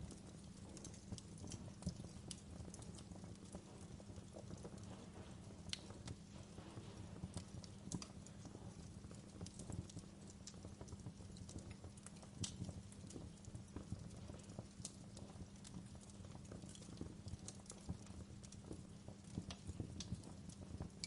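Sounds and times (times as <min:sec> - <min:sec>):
fire crackling in a fireplace: 0:00.0 - 0:21.0.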